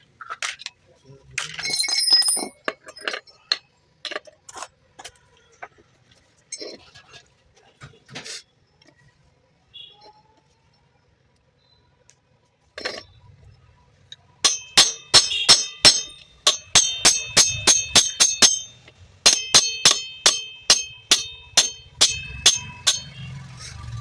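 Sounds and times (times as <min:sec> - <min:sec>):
hammer tapping on metal: 0:14.5 - 0:24.0.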